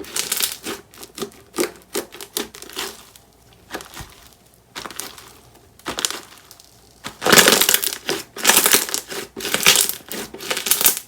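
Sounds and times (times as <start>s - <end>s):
slime crackling when squeezed: 3.7s - 11.0s.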